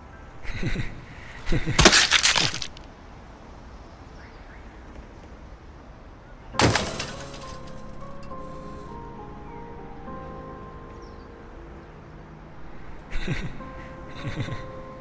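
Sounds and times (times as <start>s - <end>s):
crashing shattering impacts: 1.4s - 2.8s, 6.6s - 7.9s.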